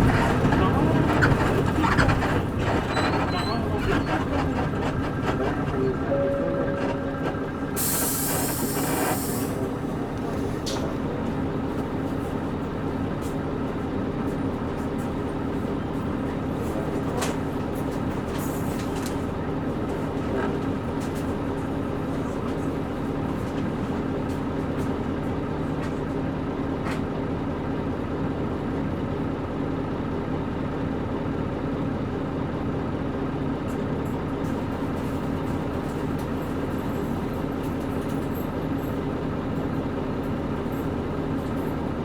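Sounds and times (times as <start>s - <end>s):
suspension creaking: 0.0s - 7.9s
bus engine humming: 0.0s - 42.0s.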